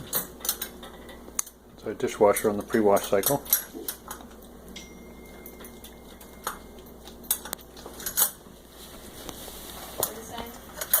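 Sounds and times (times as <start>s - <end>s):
dishes and cutlery clinking: 2.3s - 8.5s, 10.0s - 11.0s.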